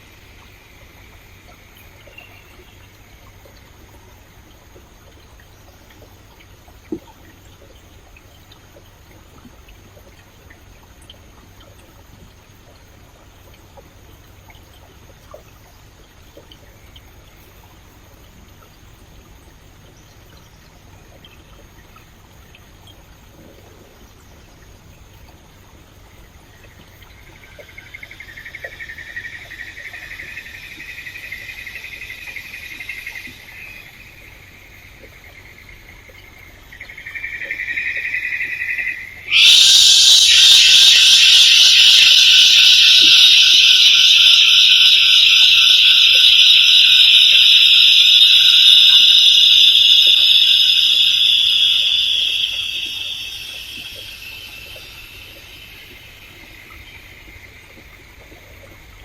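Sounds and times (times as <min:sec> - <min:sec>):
faint stream: 0:00.0 - 0:59.0
high insect drone: 0:27.0 - 0:58.2
loud high hiss: 0:39.2 - 0:56.2.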